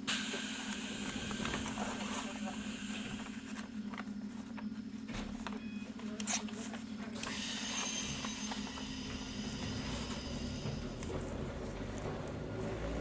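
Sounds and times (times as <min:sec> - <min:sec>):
electric train motor hum: 0:06.9 - 0:13.0
wheels running on rails: 0:07.2 - 0:13.0.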